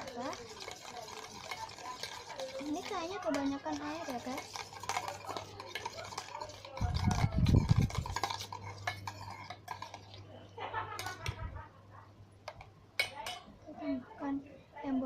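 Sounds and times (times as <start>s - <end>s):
spoon stirring slime: 0.0s - 11.2s.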